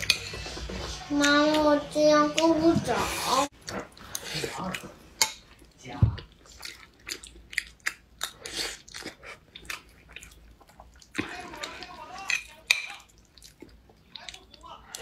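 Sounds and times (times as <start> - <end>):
metal spoon scraping bowl: 0.0 - 0.7
wet chewing and mouth smacks: 3.6 - 11.8, 12.8 - 15.0.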